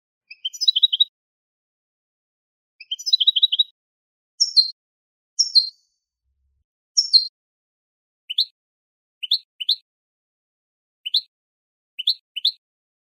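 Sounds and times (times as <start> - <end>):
finch singing: 0.3 - 1.1, 2.8 - 3.8, 4.4 - 4.8, 5.4 - 5.9, 7.0 - 7.3, 8.3 - 8.5, 9.2 - 9.8, 11.0 - 11.3, 12.0 - 12.6.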